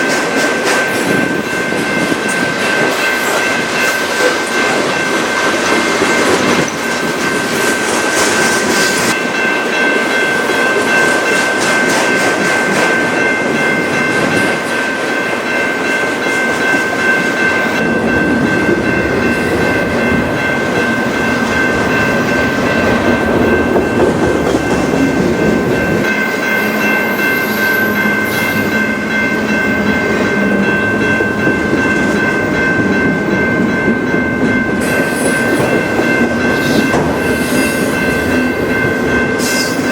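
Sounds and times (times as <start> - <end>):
train wheels clattering on rails: 0.0 - 39.9
high ringing tone: 11.8 - 39.9.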